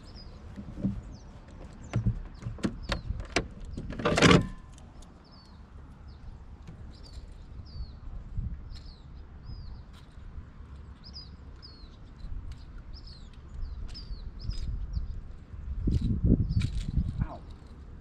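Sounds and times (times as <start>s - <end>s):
small bird chirping: 5.2s - 8.1s, 8.7s - 10.2s, 11.0s - 17.6s.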